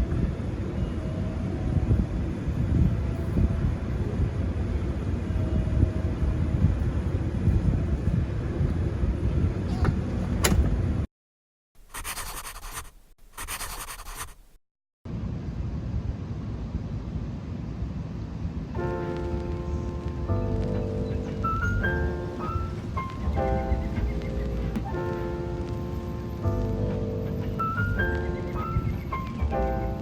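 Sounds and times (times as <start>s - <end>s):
wind buffeting microphone: 0.0s - 11.1s, 17.8s - 30.0s.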